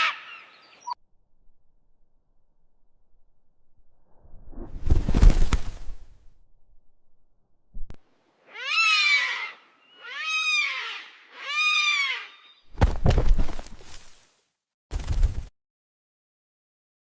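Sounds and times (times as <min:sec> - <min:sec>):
animal crying: 0:08.5 - 0:12.6.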